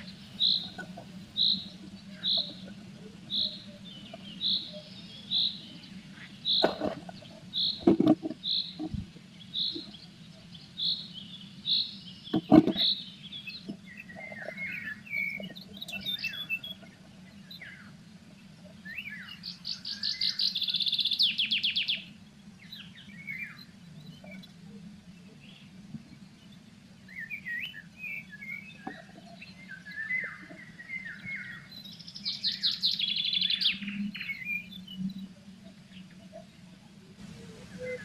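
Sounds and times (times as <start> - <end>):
rapid bird trill: 0.0 - 16.9
songbirds calling and singing: 0.0 - 38.0.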